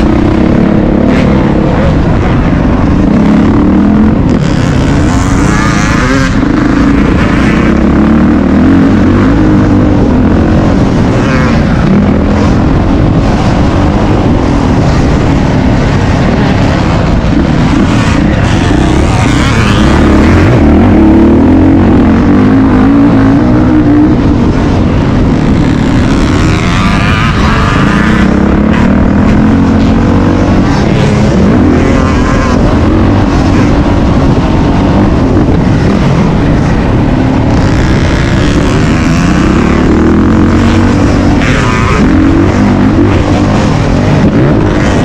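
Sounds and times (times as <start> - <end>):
dirt bike engine revving: 0.0 - 45.0.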